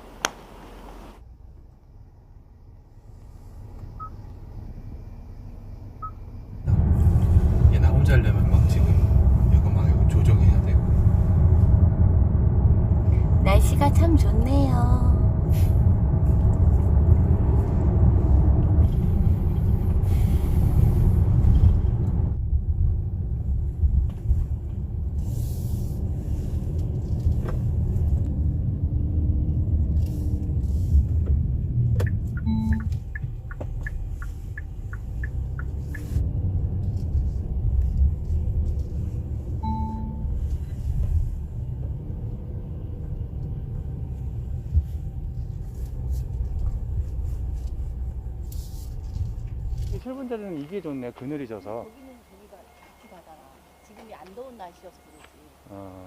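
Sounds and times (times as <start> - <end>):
car driving slowly: 0.0 - 56.0
short electronic beeps: 32.0 - 33.2, 39.6 - 40.4.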